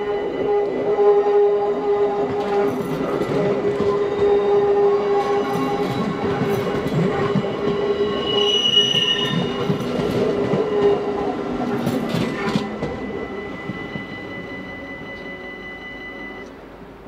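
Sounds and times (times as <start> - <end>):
crossing warning bell ringing: 0.0 - 16.7
train wheels rushing on rail: 0.0 - 17.0
high wheel squeal: 7.4 - 16.5.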